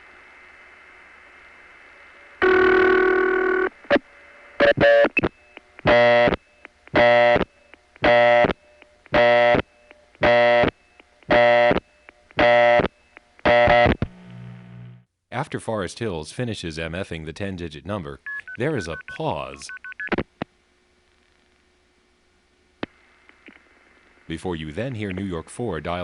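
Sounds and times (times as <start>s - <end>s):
faint line hiss: 0.0s - 2.4s
steady buzzy tone: 0.0s - 15.1s.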